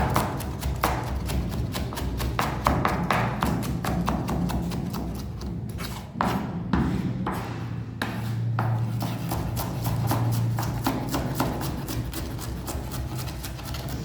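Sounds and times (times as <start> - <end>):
knife chopping on cutting board: 0.0 - 14.0
knife rasping strokes: 8.2 - 14.0.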